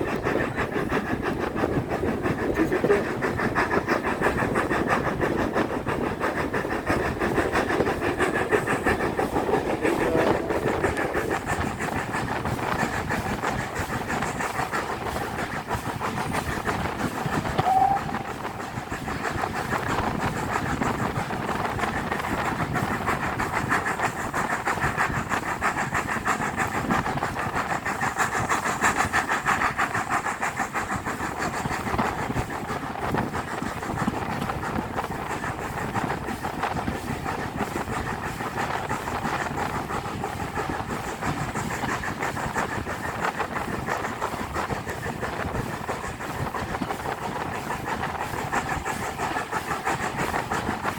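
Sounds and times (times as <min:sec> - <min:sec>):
steam train rumble: 0:00.0 - 0:50.9
wheel clatter on rails: 0:00.0 - 0:50.9
short high whistle note: 0:17.6 - 0:18.3.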